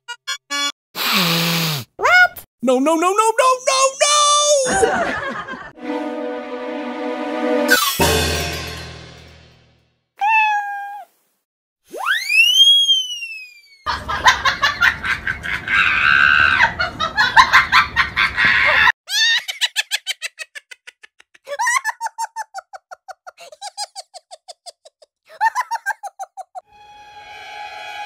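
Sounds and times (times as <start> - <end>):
man laughing: 4.6 - 5.7
loud dense rhythmic sound: 5.8 - 9.6.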